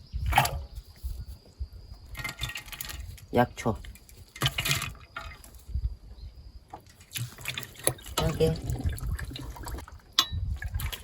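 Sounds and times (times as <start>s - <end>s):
water pouring into a pot: 7.1s - 11.0s.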